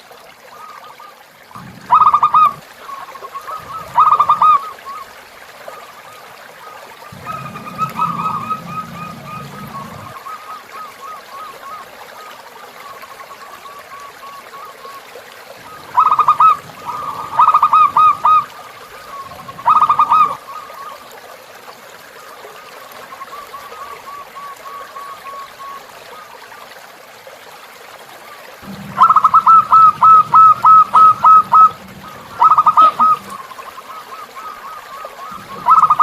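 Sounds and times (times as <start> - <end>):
river trickling: 0.0 - 36.0
repeated bird notes: 1.6 - 4.8, 7.1 - 11.5, 15.6 - 20.9, 28.6 - 36.0
dove cooing: 1.6 - 5.0, 6.7 - 11.8, 15.6 - 21.0, 28.6 - 36.0.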